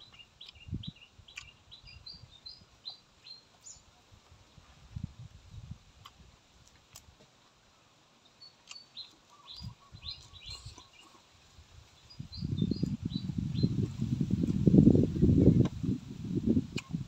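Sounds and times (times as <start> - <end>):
small birds chirping: 0.0 - 4.2, 8.1 - 14.7
close chewing of raw greens: 0.0 - 7.7, 8.3 - 14.8.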